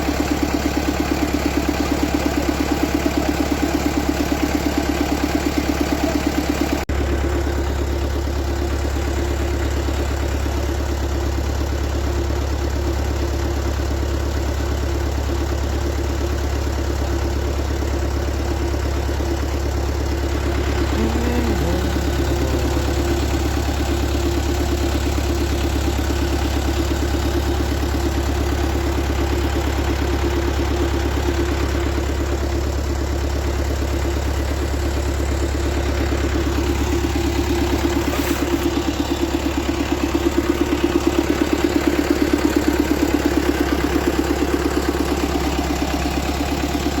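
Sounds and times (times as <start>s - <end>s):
vehicle engine droning: 17.6s - 47.0s.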